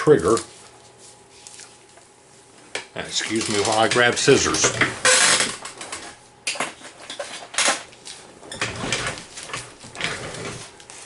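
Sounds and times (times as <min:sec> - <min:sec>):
rummaging and handling noise: 0:03.1 - 0:11.0.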